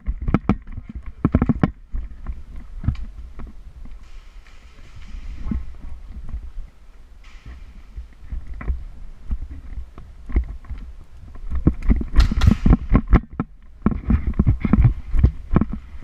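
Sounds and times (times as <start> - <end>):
airsoft gun knocks and thumps: 11.6 - 15.8.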